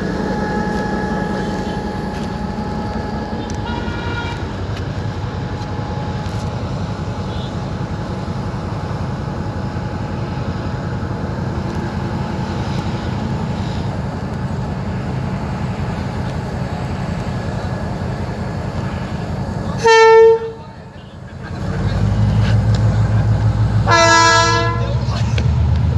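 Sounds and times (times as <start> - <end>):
faint steady whine: 0.0 - 19.6
train rumbling: 0.0 - 25.9.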